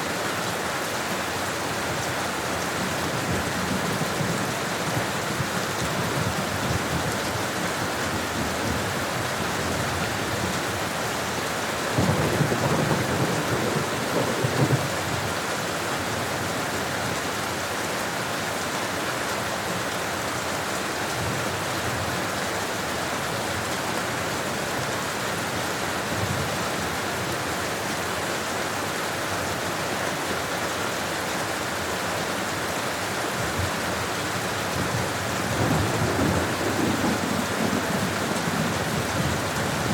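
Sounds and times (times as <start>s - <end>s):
steady rain falling: 0.0s - 39.9s
low rumble of thunder: 12.0s - 15.2s, 34.8s - 39.9s.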